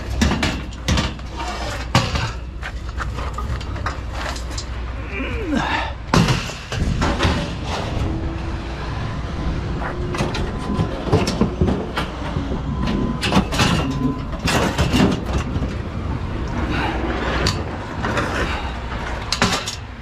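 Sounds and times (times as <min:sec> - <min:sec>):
scrap metal clanking: 0:00.0 - 0:04.9, 0:06.1 - 0:08.5, 0:09.8 - 0:15.7
metal scraping: 0:00.0 - 0:05.0, 0:06.3 - 0:15.7
steady low rumble: 0:00.0 - 0:20.0.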